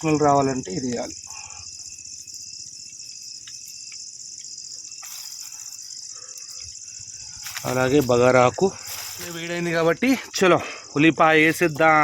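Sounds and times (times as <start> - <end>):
insects trilling: 0.0 - 12.0
faint ticks: 2.8 - 7.8.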